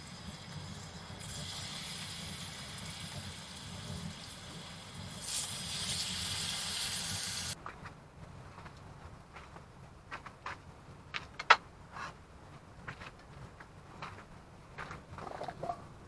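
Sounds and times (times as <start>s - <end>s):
steady hiss: 0.0s - 7.6s.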